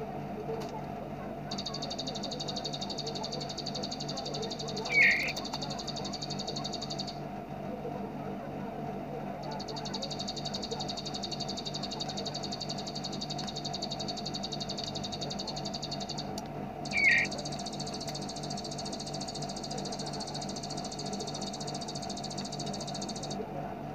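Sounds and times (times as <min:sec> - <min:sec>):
steady low hum: 0:00.0 - 0:23.9
loud low bird chirp: 0:04.8 - 0:05.4, 0:16.9 - 0:17.3
bird buzzing trill: 0:04.8 - 0:05.5, 0:16.9 - 0:17.8.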